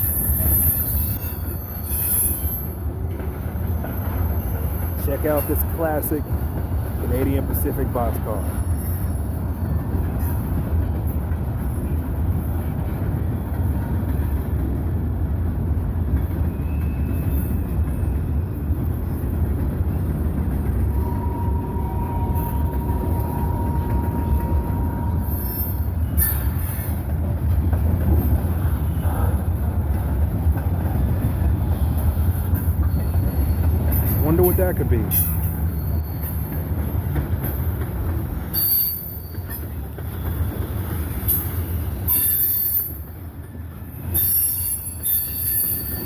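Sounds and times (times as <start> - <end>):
thin wheel squeal: 0.0 - 2.8
train wheels rumbling on rail: 0.0 - 46.0.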